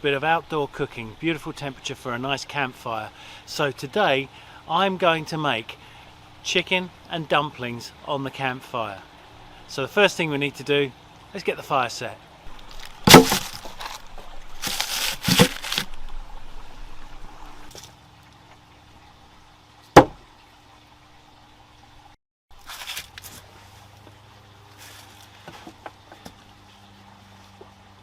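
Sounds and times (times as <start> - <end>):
sharp wood snap: 12.5 - 16.0
firewood rustling and knocking: 12.5 - 16.6, 20.0 - 20.2.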